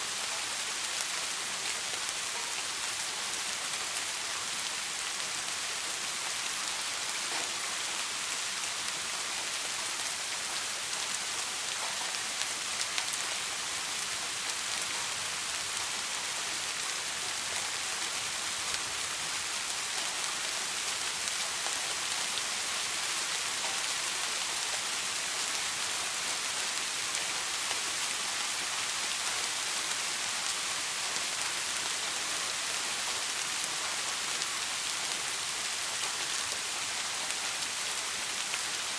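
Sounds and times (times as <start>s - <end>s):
soft rain falling: 0.0s - 38.9s.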